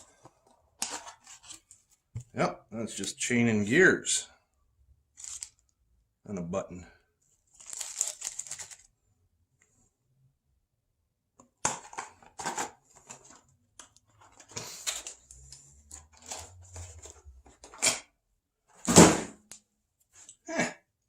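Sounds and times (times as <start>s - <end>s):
rustling of paper and plastic: 5.2s - 5.7s, 7.5s - 9.0s, 11.9s - 17.8s
parts clattering: 11.6s - 18.1s
rummaging through cardboard box: 15.9s - 17.8s.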